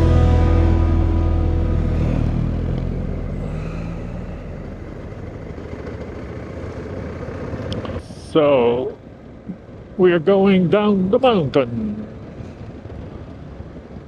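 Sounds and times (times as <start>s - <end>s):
sustained music tones: 0.0s - 5.8s
motorcycle engine running: 0.0s - 10.0s.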